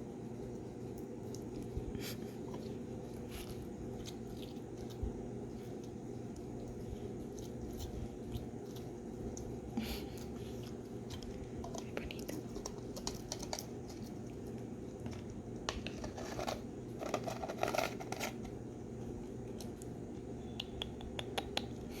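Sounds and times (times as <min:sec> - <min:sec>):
steady low hum: 0:00.0 - 0:22.0
small clicks and crackles: 0:10.5 - 0:18.6.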